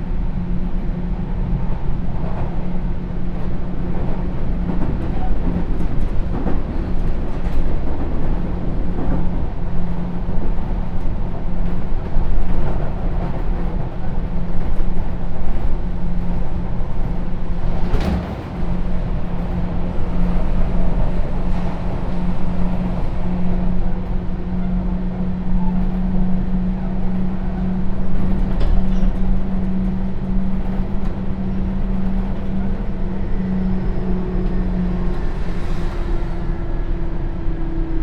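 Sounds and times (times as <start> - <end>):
electric train rumble and hum: 0.0 - 38.0.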